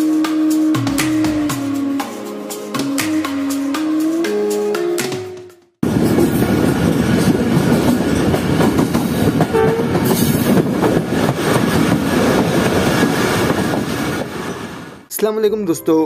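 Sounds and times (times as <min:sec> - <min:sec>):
wheels clattering on rails: 0:05.8 - 0:14.8
diesel train rumble: 0:05.8 - 0:15.1.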